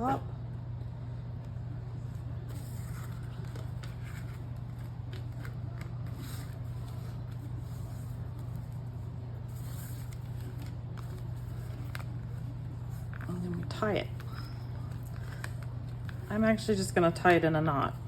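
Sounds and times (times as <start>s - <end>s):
steady low hum: 0.0s - 18.0s
paper rustling: 2.1s - 16.5s.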